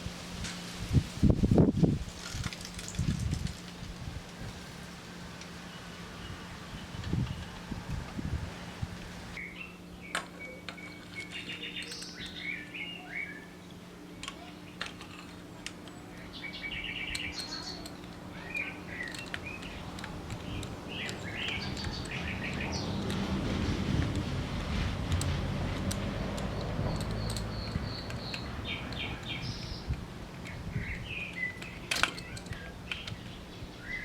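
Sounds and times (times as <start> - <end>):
steady low hum: 0.0 - 34.0
small birds chirping: 9.3 - 23.4, 25.9 - 34.0
sharp clicks: 25.1 - 33.3.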